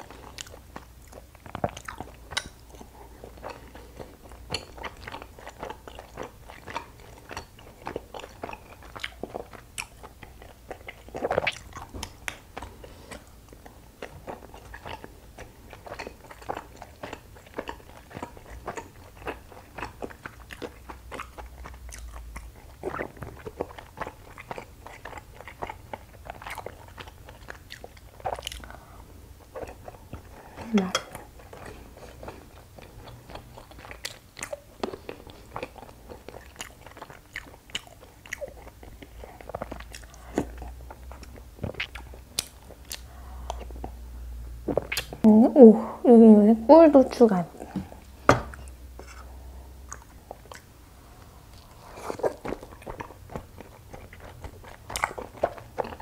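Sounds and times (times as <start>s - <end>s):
chewing sticky rice cakes: 0.0s - 44.0s, 44.6s - 45.3s, 47.1s - 56.0s.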